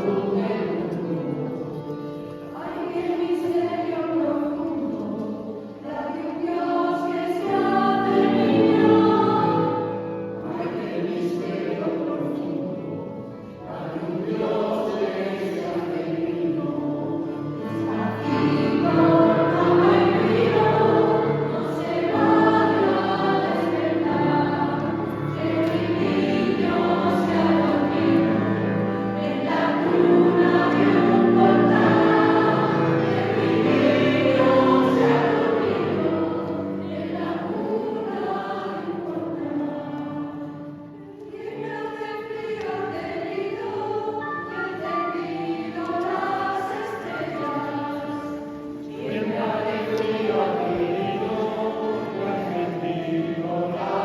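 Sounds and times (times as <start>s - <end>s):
mixed choir singing in harmony: 0.0s - 54.0s.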